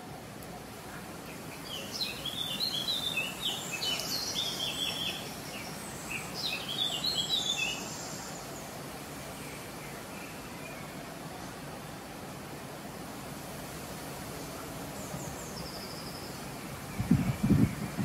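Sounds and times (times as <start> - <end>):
steady background hiss: 0.0 - 18.0
bird chirping: 1.3 - 8.4.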